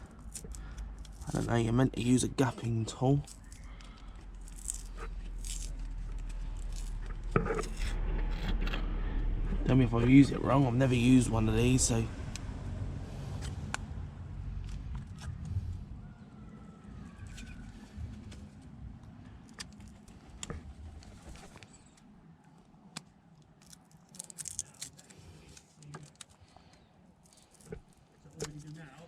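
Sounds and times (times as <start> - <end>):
metallic clicks and scrapes: 0.0 - 1.8, 2.4 - 9.7, 23.0 - 29.0
low rumble: 0.0 - 19.2.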